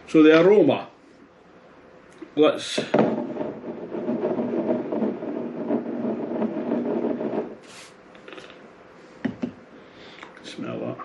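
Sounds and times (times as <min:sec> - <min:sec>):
short sniff: 0:07.6 - 0:08.6.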